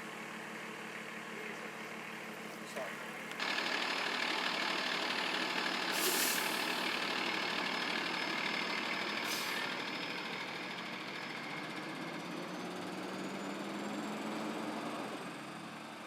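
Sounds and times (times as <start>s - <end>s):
engine idling: 0.0s - 13.4s
short bursts of hiss: 6.0s - 6.8s.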